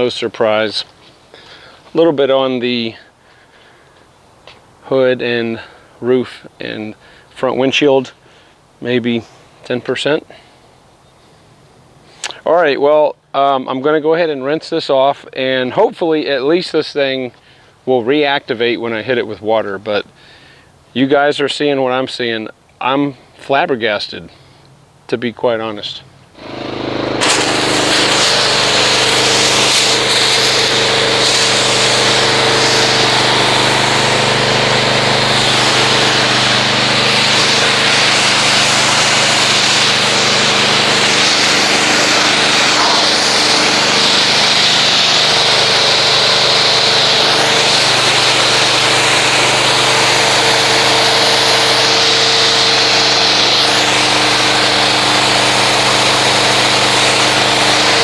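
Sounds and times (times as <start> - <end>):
pressure washer spray hiss: 26.4 - 58.0.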